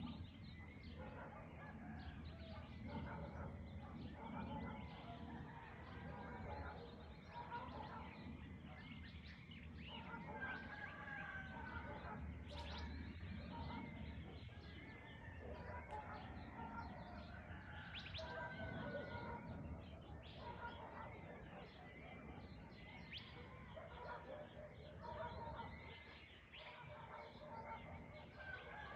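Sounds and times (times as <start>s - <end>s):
birds chirping and calling: 0.0s - 28.9s.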